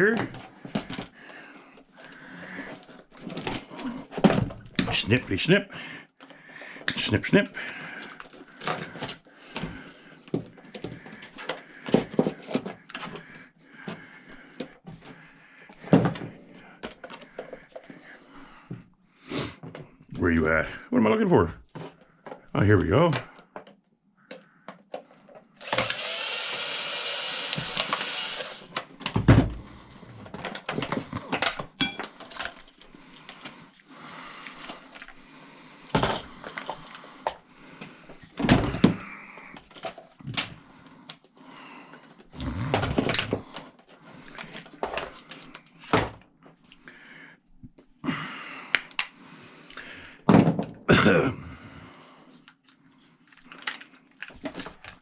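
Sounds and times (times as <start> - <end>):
steady mechanical noise: 25.6 - 28.7.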